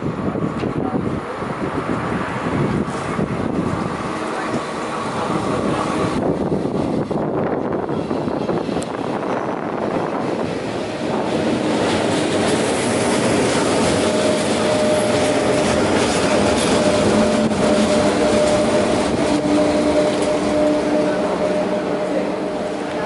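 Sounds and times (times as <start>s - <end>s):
train wheels rumbling on rails: 0.0s - 23.0s
steady whining tones: 2.7s - 23.0s.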